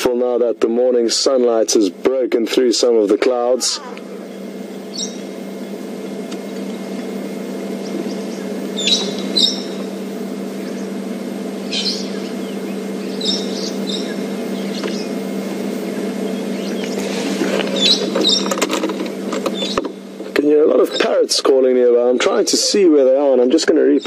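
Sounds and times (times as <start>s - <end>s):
steady low hum: 0.0s - 24.0s
parrots giving shrill calls: 8.8s - 9.8s.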